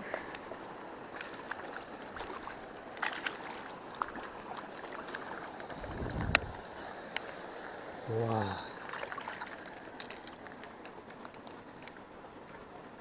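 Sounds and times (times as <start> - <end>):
stream water running: 0.0 - 13.0
low rumble: 5.8 - 6.6.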